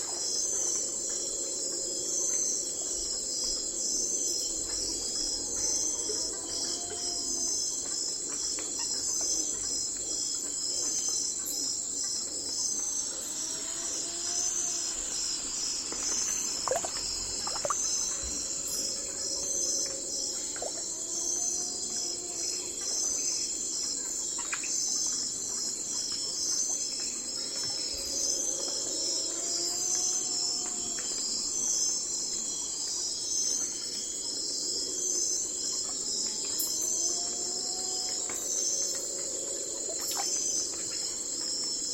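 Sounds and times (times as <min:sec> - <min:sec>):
crickets and insects chorus: 0:00.0 - 0:41.9.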